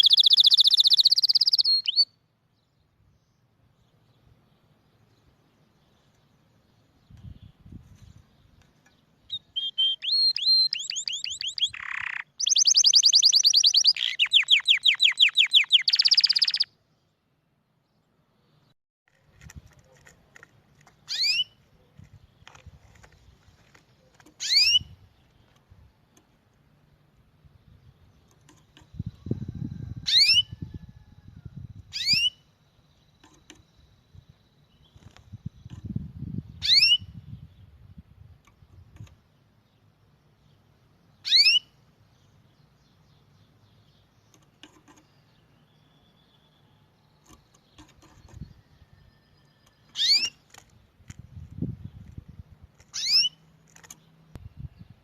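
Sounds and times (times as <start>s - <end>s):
songbird whistled calls: 0.0s - 2.1s, 9.3s - 16.7s, 30.0s - 30.8s, 31.9s - 32.4s, 36.6s - 37.2s, 41.2s - 41.7s, 48.9s - 50.4s, 53.0s - 53.4s
canary singing trills: 0.0s - 2.2s, 3.9s - 16.8s, 19.7s - 26.3s, 27.5s - 55.0s.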